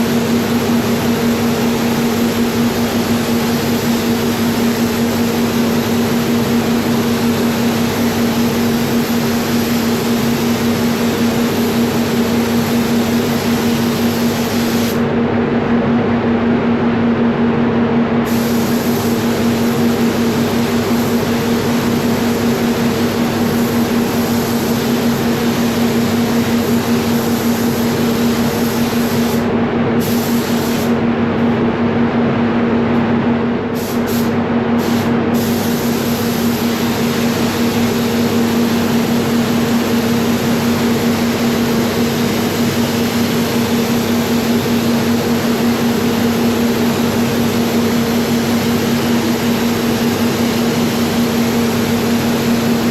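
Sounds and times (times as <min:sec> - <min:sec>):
spray gun hissing: 0:00.0 - 0:15.0, 0:18.3 - 0:31.0, 0:33.8 - 0:52.9
spray booth air hum: 0:00.0 - 0:15.2, 0:18.2 - 0:52.9.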